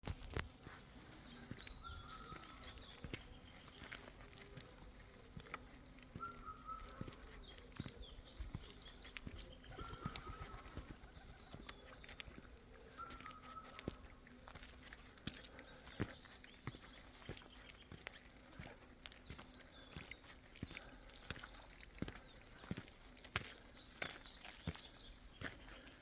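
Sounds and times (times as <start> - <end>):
footsteps: 0.0 - 20.0
birds singing: 0.3 - 26.0.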